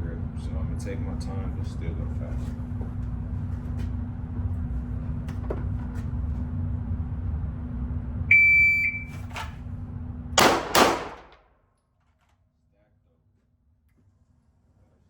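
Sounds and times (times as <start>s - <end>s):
steady low hum: 0.0s - 11.4s
shot timer beep: 8.3s - 9.2s
pistol shots: 10.4s - 11.4s.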